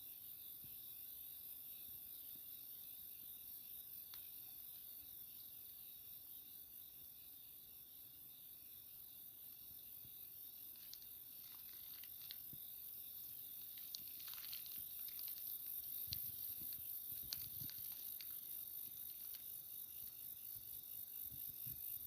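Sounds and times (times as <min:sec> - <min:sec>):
crickets chirping: 0:00.0 - 0:22.0
faint clicks and ticks: 0:10.7 - 0:12.6, 0:13.6 - 0:20.6.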